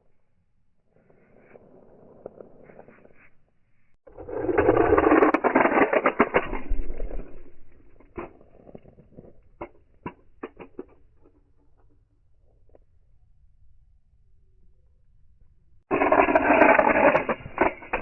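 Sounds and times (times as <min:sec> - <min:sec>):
toy cars rolling along track: 0:04.2 - 0:11.4, 0:15.9 - 0:18.0
toy cars crashing clicks: 0:04.2 - 0:11.8, 0:15.9 - 0:18.0.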